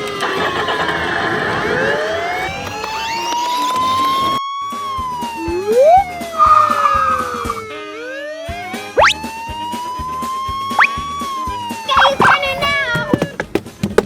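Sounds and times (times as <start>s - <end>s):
police siren wailing: 0.0s - 12.5s
high steady siren tone: 0.5s - 12.1s
siren whoop: 1.3s - 11.9s.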